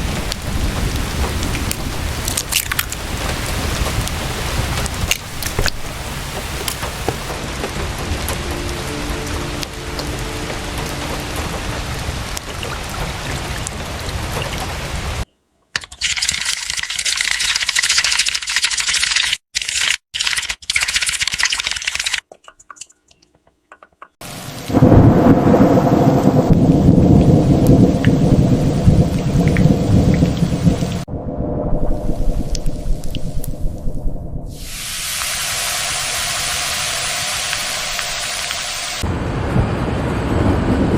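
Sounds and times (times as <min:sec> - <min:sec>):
rolling thunder rumble: 0:00.0 - 0:15.2, 0:24.4 - 0:38.2, 0:39.0 - 0:40.9
steady rain hiss: 0:00.0 - 0:15.3, 0:24.2 - 0:31.1, 0:34.5 - 0:40.9
bright high-pitched hiss: 0:34.5 - 0:39.0.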